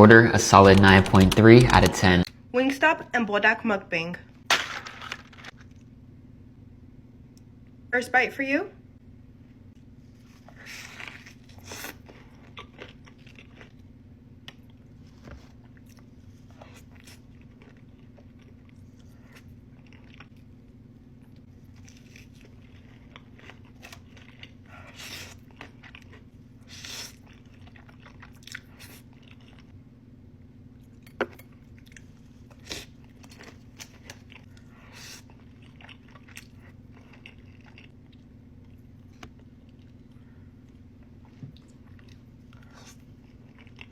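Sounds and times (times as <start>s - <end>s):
faint low hum: 0.0s - 43.9s
crunchy food being chewed: 10.1s - 20.6s, 21.2s - 29.8s, 30.8s - 43.9s.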